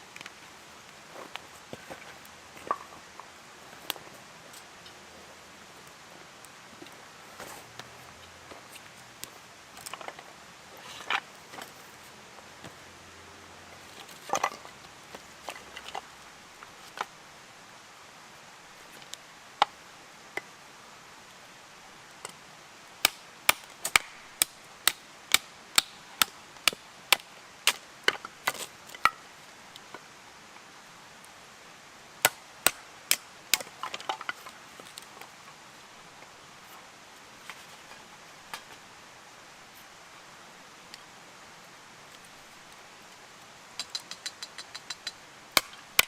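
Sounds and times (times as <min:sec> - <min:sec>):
firewood being chopped: 0:01.2 - 0:03.2, 0:23.0 - 0:29.2, 0:32.2 - 0:35.1, 0:45.5 - 0:46.0.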